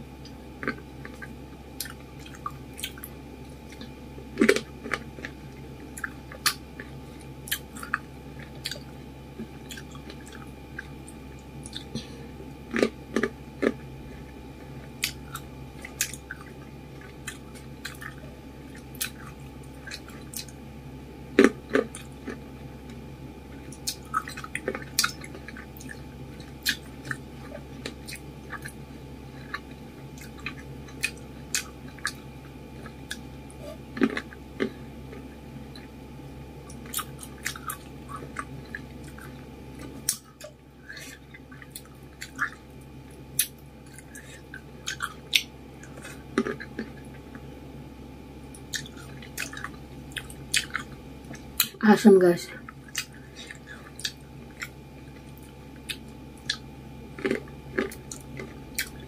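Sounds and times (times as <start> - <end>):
wet chewing of fruit: 0.6 - 20.6, 21.3 - 35.9, 36.6 - 47.5, 48.5 - 51.8, 52.6 - 59.0.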